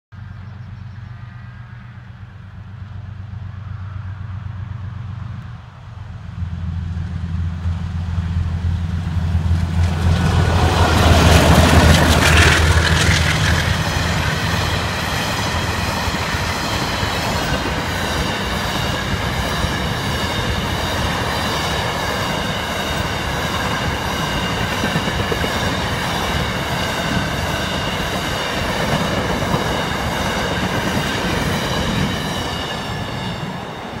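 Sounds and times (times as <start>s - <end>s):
diesel locomotive engines: 0.2s - 34.0s
wheels rolling on rails: 9.0s - 34.0s
high wheel squeal: 10.8s - 34.0s.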